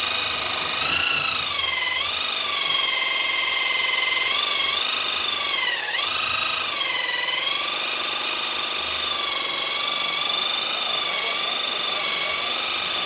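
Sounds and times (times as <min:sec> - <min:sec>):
small motor whining: 0:00.0 - 0:13.0.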